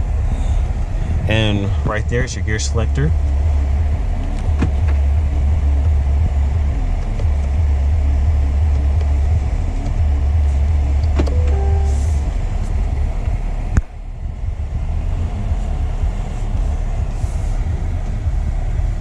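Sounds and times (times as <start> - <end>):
suv engine idling: 0.0 - 19.0
short electronic tones: 11.2 - 12.4.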